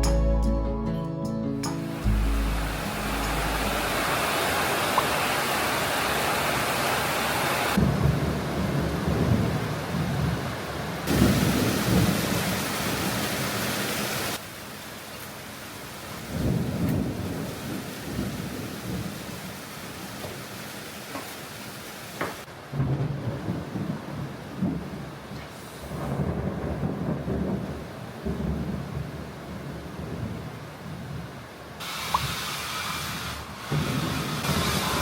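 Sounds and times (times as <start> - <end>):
steady rain falling: 1.8 - 35.0
rolling thunder: 7.7 - 13.6, 16.3 - 19.4, 22.7 - 31.3, 33.7 - 35.0.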